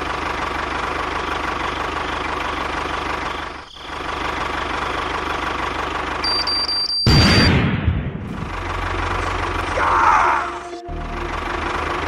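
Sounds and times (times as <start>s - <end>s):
tractor engine chugging: 0.0s - 7.6s, 8.2s - 12.0s
high beeping tone: 6.2s - 7.5s.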